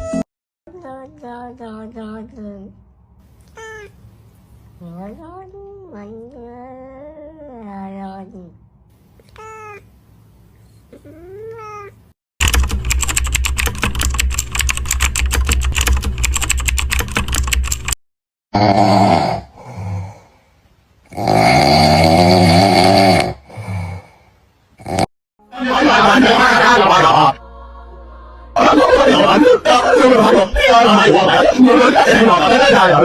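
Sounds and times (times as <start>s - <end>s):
cat meowing: 3.4s - 4.0s, 9.2s - 9.8s, 11.1s - 12.0s
cat yowling: 3.5s - 4.0s, 9.4s - 9.8s
rapid keyboard-like clicking: 12.4s - 18.0s.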